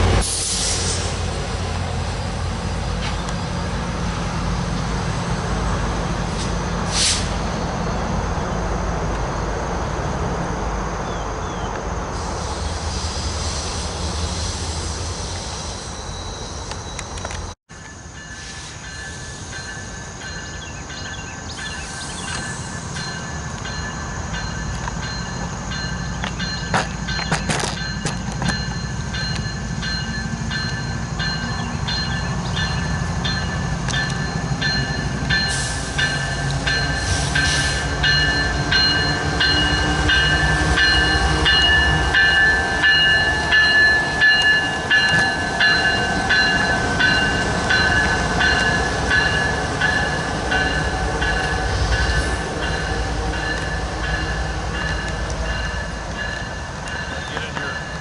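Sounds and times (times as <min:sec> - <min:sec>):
train engine and wheel rumble: 0:00.0 - 0:58.0.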